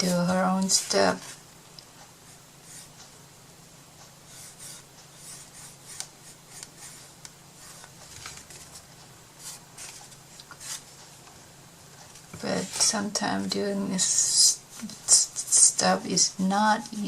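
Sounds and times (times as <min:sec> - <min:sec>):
paper scraping and rubbing: 0:09.4 - 0:10.9.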